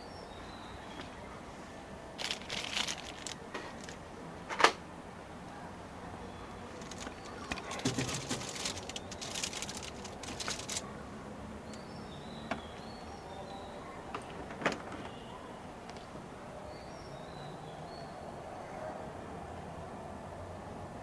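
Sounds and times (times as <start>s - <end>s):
light clicks and rustles: 2.2s - 4.8s, 6.7s - 10.9s.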